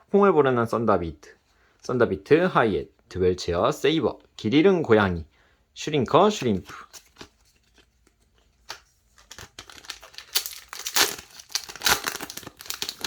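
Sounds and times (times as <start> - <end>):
foil wrapper tearing and crinkling: 8.7 - 13.0.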